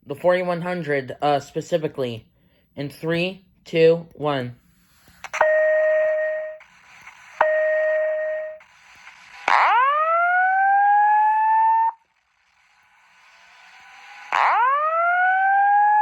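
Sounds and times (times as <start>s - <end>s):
fire alarm beeps: 5.4s - 6.7s, 7.4s - 8.6s
fire alarm rising whoop: 9.4s - 16.0s.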